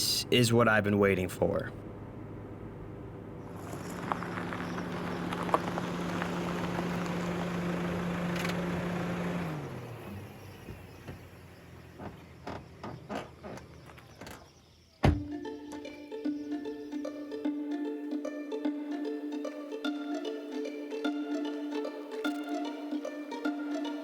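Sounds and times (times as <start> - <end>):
vehicle engine running: 0.0 - 14.4
sharp thump: 15.0 - 15.3
plucked-string music: 15.2 - 24.0.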